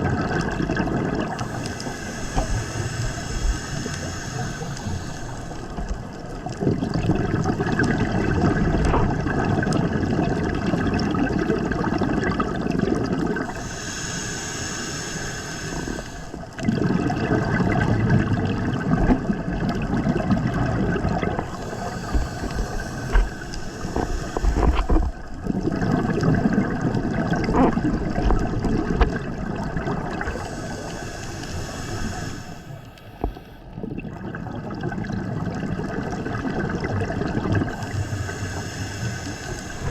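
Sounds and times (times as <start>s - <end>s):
gurgling exhaled bubbles: 0.0s - 39.9s
hissing regulator inhalation: 1.1s - 8.1s, 13.1s - 16.7s, 21.0s - 25.4s, 27.1s - 33.7s, 37.3s - 39.9s.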